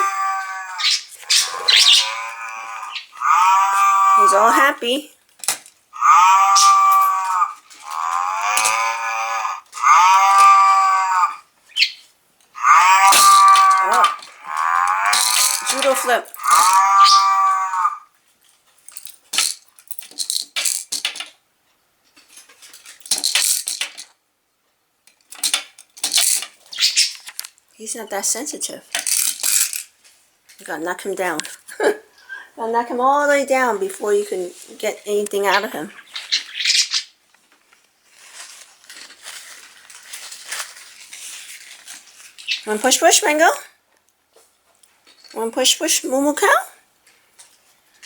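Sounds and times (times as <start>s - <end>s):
plastic toy clattering: 5.3s - 5.8s, 13.1s - 16.8s, 18.8s - 21.4s, 22.2s - 24.2s, 25.1s - 27.6s, 28.9s - 29.9s.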